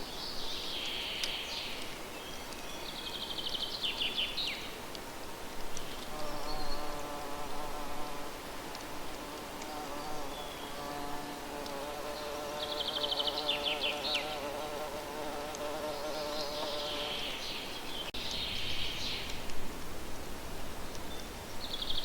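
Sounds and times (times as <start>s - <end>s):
insect buzzing: 6.0s - 17.6s
birds singing: 9.7s - 11.1s, 12.0s - 14.6s, 15.7s - 19.5s, 20.9s - 22.0s.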